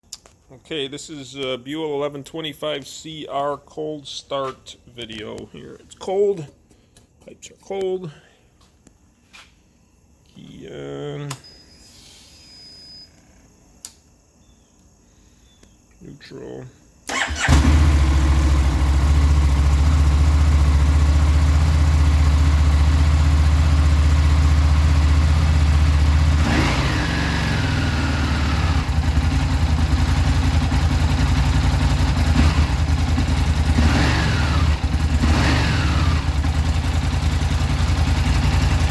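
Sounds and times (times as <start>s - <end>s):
motorcycle engine idling: 17.1s - 38.9s.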